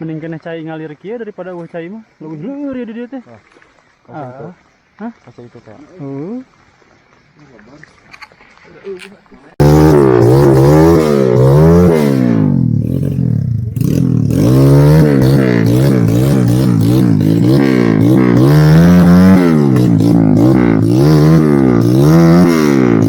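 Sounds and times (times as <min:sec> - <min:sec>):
motorcycle engine revving: 0:09.6 - 0:23.0.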